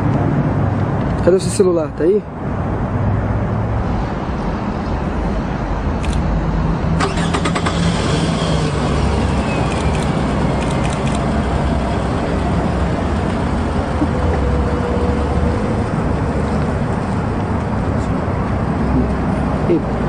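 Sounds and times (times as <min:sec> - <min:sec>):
sharp clicks: 0:06.0 - 0:06.3, 0:09.7 - 0:11.3
car engine idling: 0:07.0 - 0:18.1.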